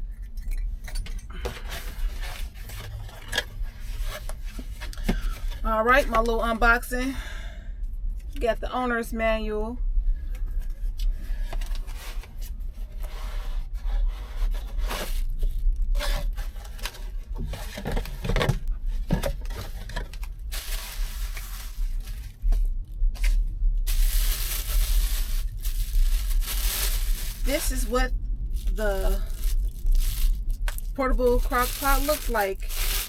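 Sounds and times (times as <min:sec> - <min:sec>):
low hum: 0:07.0 - 0:33.0
packaging tearing and rustling: 0:14.7 - 0:18.2, 0:19.2 - 0:22.6, 0:23.2 - 0:28.0, 0:28.6 - 0:33.0.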